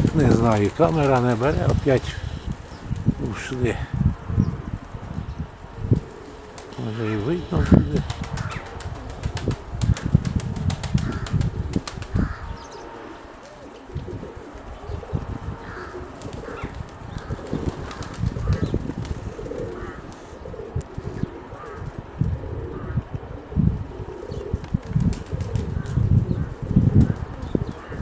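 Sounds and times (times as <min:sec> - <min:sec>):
pigeon wings flapping: 0:00.0 - 0:03.8, 0:06.0 - 0:12.4, 0:13.4 - 0:22.0, 0:24.5 - 0:28.0
wind buffeting microphone: 0:00.0 - 0:28.0.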